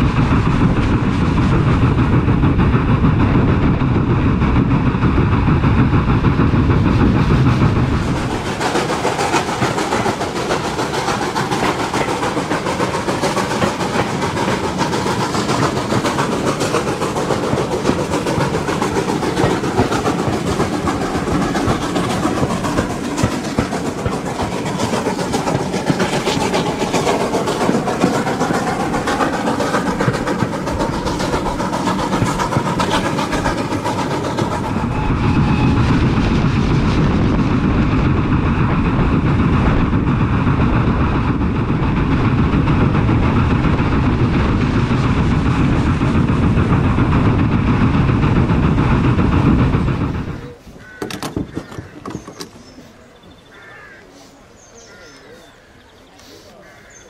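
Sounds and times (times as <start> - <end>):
train running noise: 0.0 - 57.0
wheels clicking over rail joints: 4.6 - 34.9, 37.6 - 52.9.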